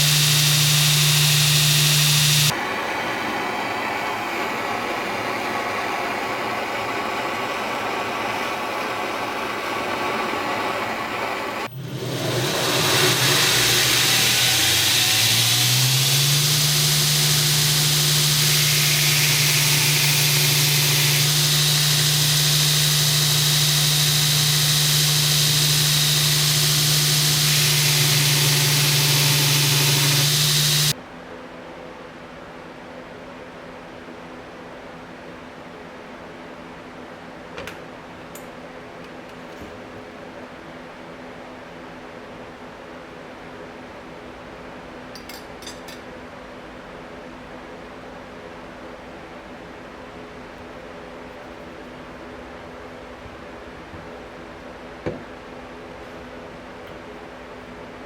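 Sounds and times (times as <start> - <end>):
electric motor winding up: 0.0 - 2.5, 11.6 - 31.0
shop machine running: 0.0 - 2.5, 9.2 - 31.0.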